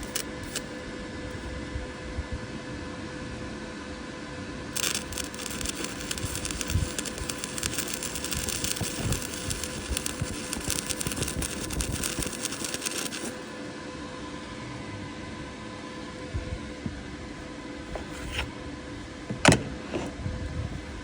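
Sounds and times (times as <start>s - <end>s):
electric arc welding crackle: 0.0s - 0.7s, 4.8s - 13.5s.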